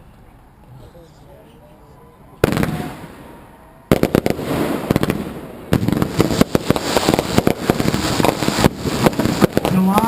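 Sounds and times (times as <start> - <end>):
fireworks bangs and crackling: 2.4 - 10.0.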